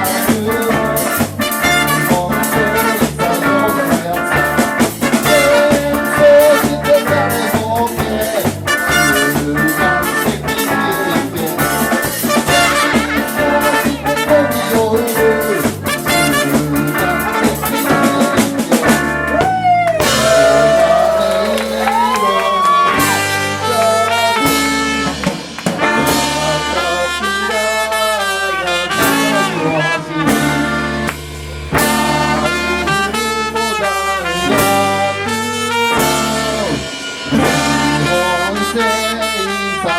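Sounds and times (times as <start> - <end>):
brass horns: 0.0 - 19.4, 20.0 - 39.9
drum kit: 0.0 - 39.9
pitch-bending lead line: 8.4 - 26.2.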